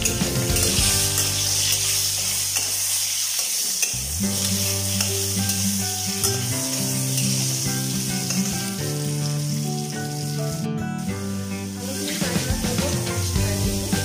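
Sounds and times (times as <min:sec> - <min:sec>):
metal spatula scraping pan: 0:00.0 - 0:06.4
potatoes sizzling in hot oil: 0:00.0 - 0:14.0.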